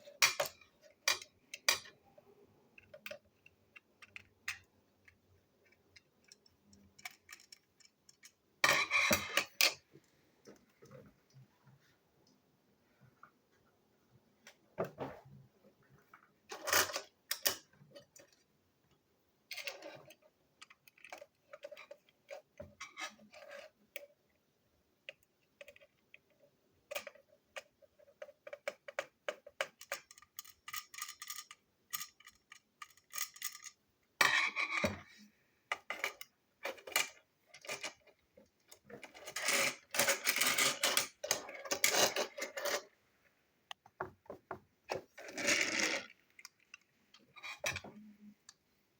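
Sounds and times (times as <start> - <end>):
plastic toy parts clattering: 2.8 - 9.8, 26.9 - 35.1, 38.7 - 42.9.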